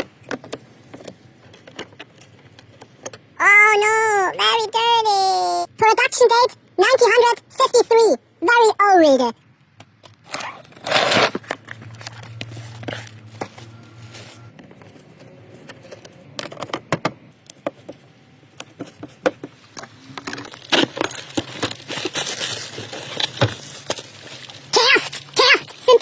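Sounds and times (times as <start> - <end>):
parts and packaging handled: 0.0 - 3.4, 9.8 - 26.0
packaging rustle: 20.1 - 26.0.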